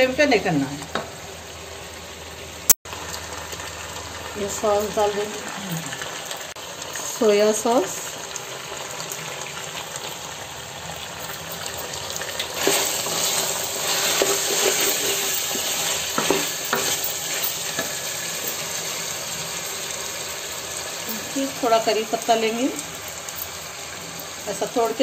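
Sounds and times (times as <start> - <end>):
chicken sizzling in oil: 0.2 - 25.0
wooden spoon stirring and scraping: 12.6 - 18.1.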